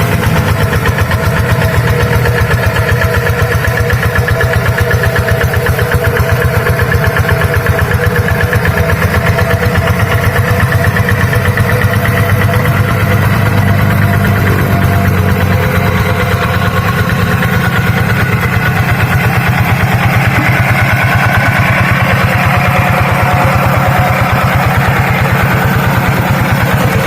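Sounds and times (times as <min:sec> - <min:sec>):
tractor engine chugging: 0:00.0 - 0:27.0.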